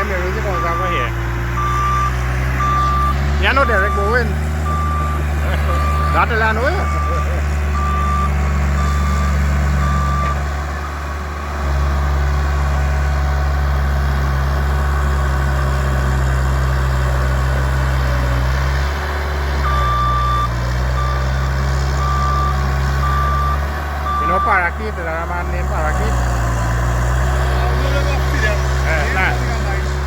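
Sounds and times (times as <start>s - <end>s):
reversing alarm beeping: 0.0s - 12.3s, 19.6s - 26.3s
diesel engine running: 0.0s - 30.0s.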